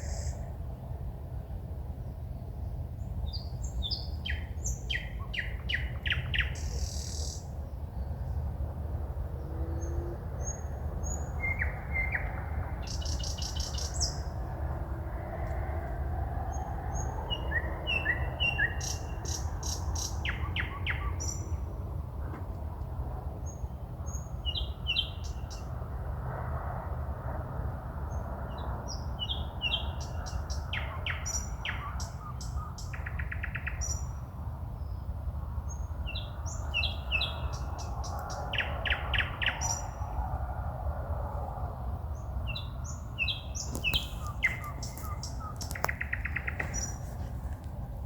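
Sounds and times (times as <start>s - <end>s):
songbirds singing: 0.0s - 15.7s, 16.3s - 22.0s, 23.2s - 25.8s, 28.1s - 40.2s, 42.0s - 48.0s
steady low rumble: 0.0s - 18.4s, 34.1s - 48.0s.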